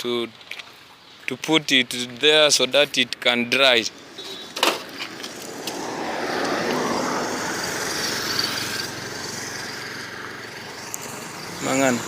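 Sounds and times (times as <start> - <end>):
motor vehicle running: 3.4 - 12.0.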